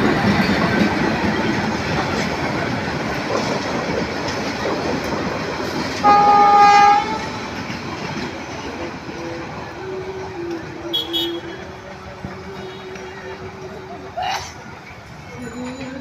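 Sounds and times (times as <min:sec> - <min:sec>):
train rumble and clatter: 0:00.0 - 0:16.0
train horn: 0:06.0 - 0:07.6, 0:10.4 - 0:13.8.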